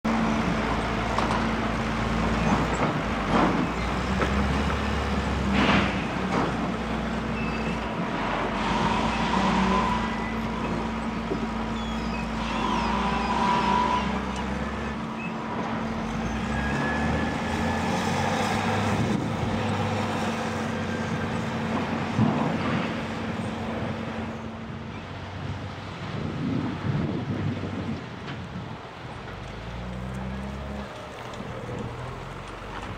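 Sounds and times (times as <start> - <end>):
diesel engine under load: 0.0 - 32.9
hydraulic whine: 7.3 - 20.0.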